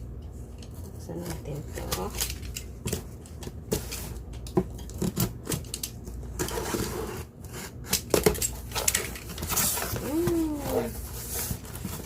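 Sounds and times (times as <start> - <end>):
packaging rubbing and scraping: 8.7 - 12.0.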